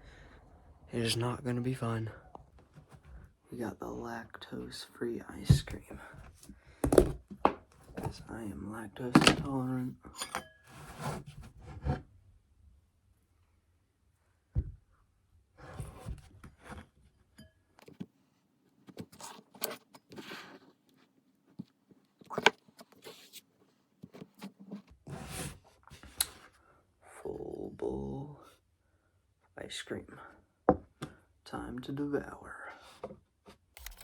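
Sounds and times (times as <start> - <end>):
spoon clinking and scraping bowl: 10.2 - 10.6.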